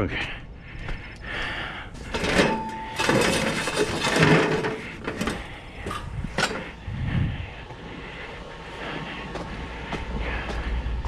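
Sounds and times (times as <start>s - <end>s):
scrap metal clattering: 1.9s - 6.8s.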